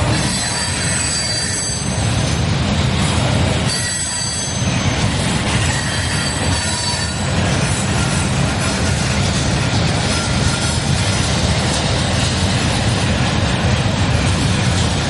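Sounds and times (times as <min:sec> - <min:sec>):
train wheels rumbling on rail: 0:00.0 - 0:15.0
wheel squeal: 0:00.1 - 0:02.4, 0:03.7 - 0:09.2, 0:10.0 - 0:11.4.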